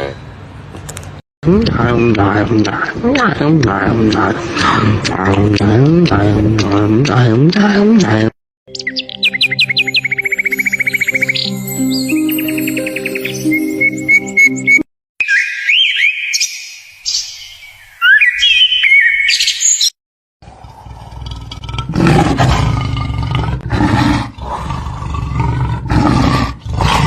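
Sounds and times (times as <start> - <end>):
bird chirps: 8.7 - 19.9
big cat roaring: 20.4 - 27.0.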